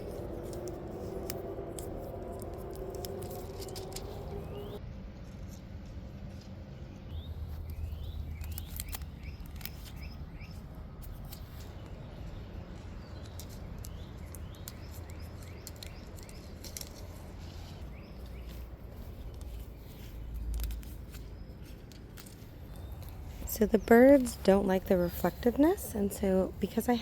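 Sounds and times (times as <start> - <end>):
small birds chirping: 0.0 - 4.8, 6.8 - 27.0
tape crinkling and clicking: 0.0 - 5.6, 7.5 - 23.5
scissors snipping: 8.3 - 11.9.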